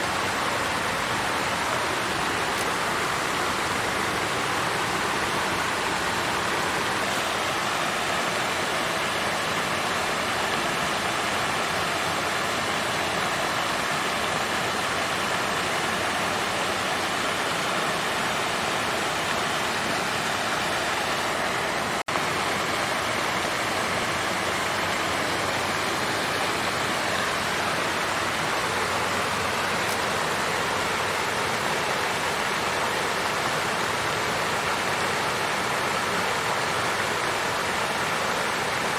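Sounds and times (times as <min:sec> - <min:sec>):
water fountain splashing: 0:00.0 - 0:38.9.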